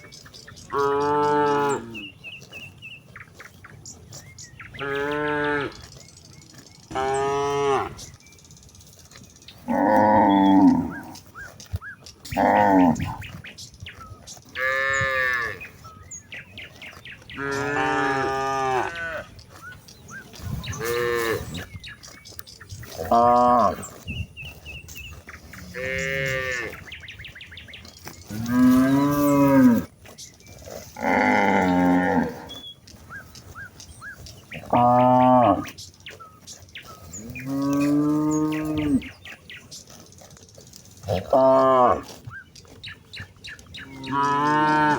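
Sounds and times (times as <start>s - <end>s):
cattle mooing: 0.7s - 2.1s, 4.7s - 5.9s, 6.9s - 8.1s, 9.6s - 11.3s, 12.2s - 13.3s, 14.5s - 15.8s, 17.3s - 19.4s, 20.6s - 21.7s, 22.9s - 24.0s, 25.5s - 27.0s, 28.2s - 29.9s, 30.6s - 32.6s, 34.5s - 35.8s, 37.1s - 39.3s, 41.0s - 42.2s, 43.7s - 44.9s.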